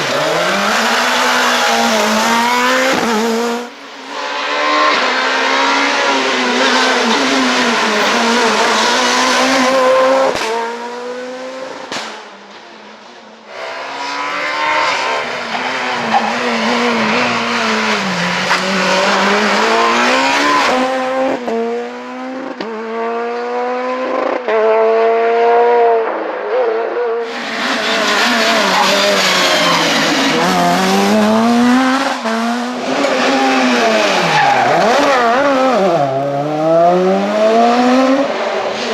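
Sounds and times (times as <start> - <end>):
rally car engines at full throttle: 0.0 - 38.9.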